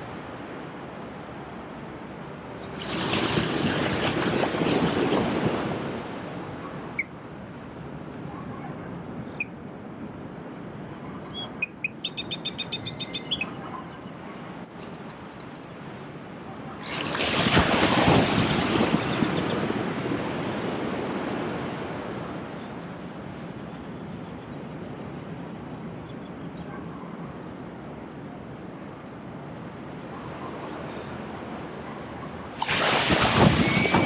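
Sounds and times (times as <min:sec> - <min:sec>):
sea waves washing on shore: 0:00.0 - 0:08.2, 0:16.0 - 0:23.7, 0:27.7 - 0:34.0
wave breaking: 0:02.7 - 0:06.6, 0:16.8 - 0:20.2, 0:32.4 - 0:34.0
bird sharp repeated calls: 0:11.2 - 0:13.6, 0:14.6 - 0:15.9.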